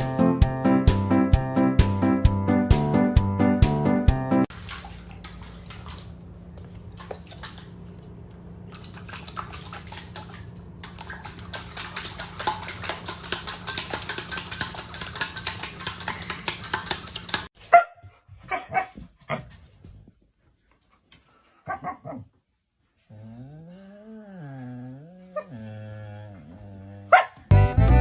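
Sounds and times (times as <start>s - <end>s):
dog barking: 17.7s - 19.5s, 21.6s - 22.3s, 27.1s - 27.4s.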